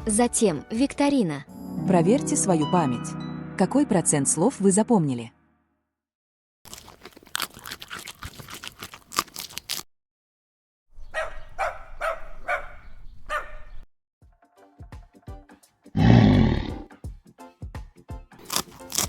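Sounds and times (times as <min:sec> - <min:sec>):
dog barking: 0:11.1 - 0:13.8.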